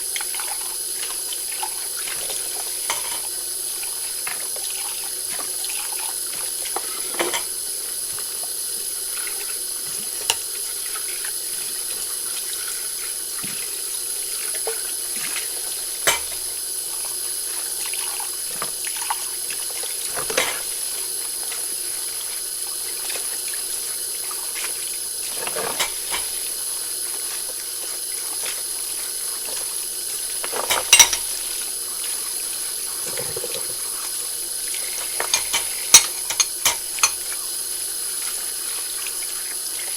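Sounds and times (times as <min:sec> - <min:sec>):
tap water running into sink: 0:00.0 - 0:39.9
dishes and cutlery clinking: 0:02.8 - 0:03.3, 0:06.8 - 0:07.6, 0:16.0 - 0:16.4, 0:20.1 - 0:20.7, 0:25.4 - 0:26.4, 0:30.5 - 0:31.4, 0:33.0 - 0:33.8, 0:35.0 - 0:37.3.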